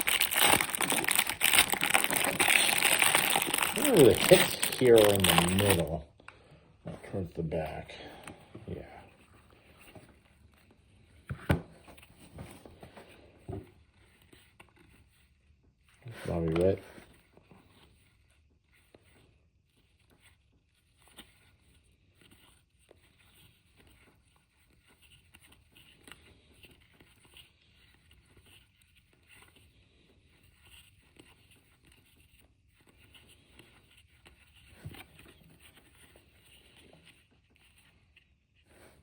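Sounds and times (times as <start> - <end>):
cards rustling and flipping: 0.0 - 6.0, 16.0 - 39.0.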